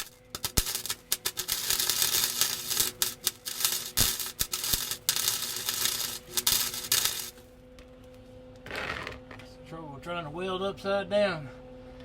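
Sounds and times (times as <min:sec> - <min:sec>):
arc welder crackling: 0:00.0 - 0:07.6.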